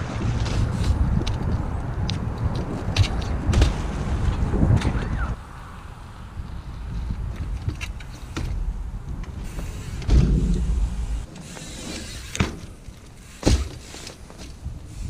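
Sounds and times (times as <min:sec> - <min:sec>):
wind noise: 0:00.0 - 0:13.4, 0:14.2 - 0:15.0
bike tyre rumbling: 0:00.0 - 0:15.0
bike impact knocks: 0:07.4 - 0:11.3, 0:12.3 - 0:12.8, 0:13.4 - 0:13.9.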